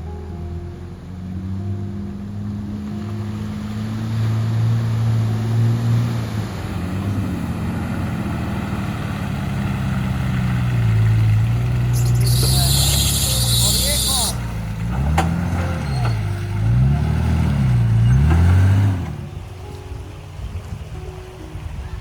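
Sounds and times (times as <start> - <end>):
vehicle engine running: 0.0 - 22.0
rushing noise: 3.8 - 14.5.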